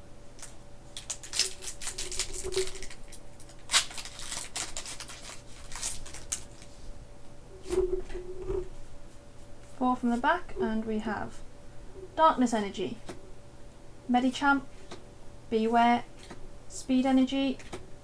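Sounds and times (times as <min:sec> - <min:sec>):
foil wrapper tearing and crinkling: 0:00.4 - 0:06.8.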